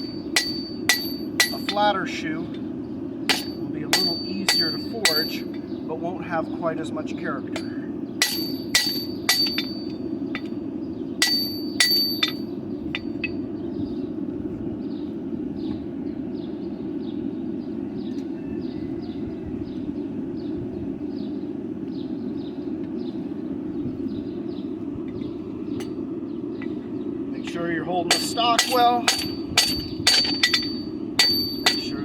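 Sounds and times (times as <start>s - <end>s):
hammer striking metal on anvil: 0.0s - 1.9s, 3.3s - 5.6s, 7.6s - 10.5s, 11.2s - 13.4s, 28.1s - 32.0s
steady low hum: 0.0s - 32.0s.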